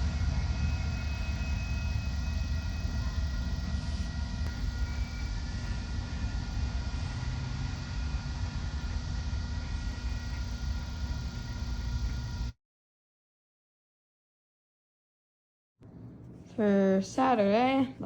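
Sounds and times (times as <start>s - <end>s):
freight train rumbling past: 0.0s - 10.2s.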